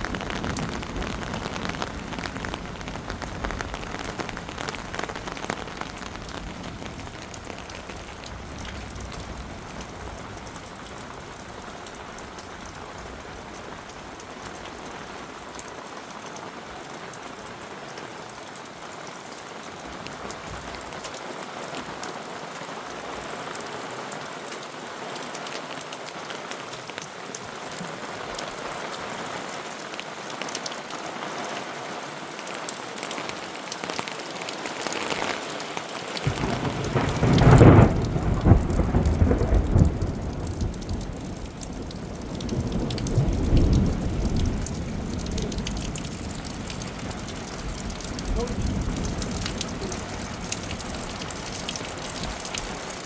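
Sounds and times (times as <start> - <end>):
rain hiss: 0.0 - 53.0
deep thunder rumble: 36.3 - 53.0.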